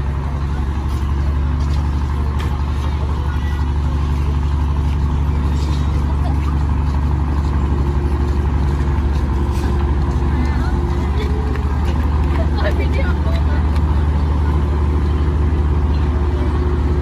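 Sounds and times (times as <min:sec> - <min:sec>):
construction machine engine droning: 0:00.0 - 0:17.0.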